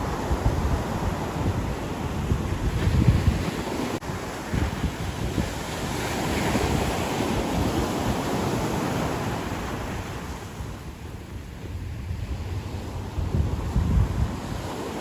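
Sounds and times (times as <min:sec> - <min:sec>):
ocean waves breaking on beach: 0:00.0 - 0:15.0
wind buffeting microphone: 0:00.0 - 0:15.0.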